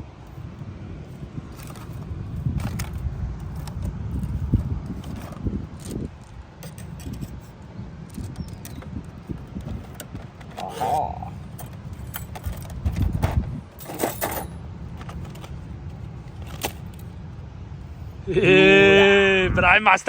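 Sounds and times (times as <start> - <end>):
wind rumbling on microphone: 0.0 - 20.0
light clicks and rattles: 1.5 - 17.2.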